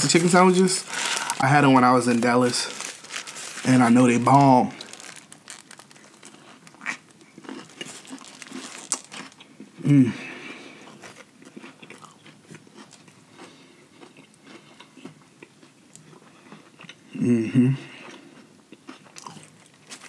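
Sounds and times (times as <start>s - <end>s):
crunchy biting and chewing: 0.9s - 9.7s, 10.8s - 17.0s, 18.0s - 20.0s
person humming mmm: 9.8s - 10.4s, 17.1s - 18.0s.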